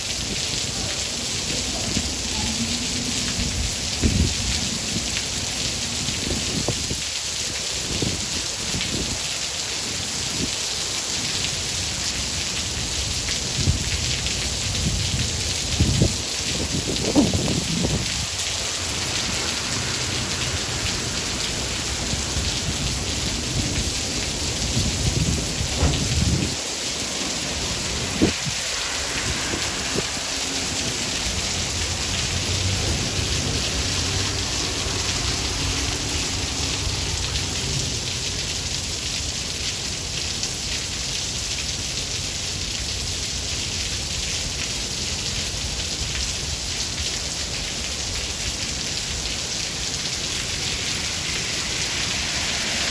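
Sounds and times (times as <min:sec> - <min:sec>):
steady rain: 0:00.0 - 0:52.9
thunder rumbling: 0:13.5 - 0:38.2
thunder clap: 0:15.1 - 0:37.8.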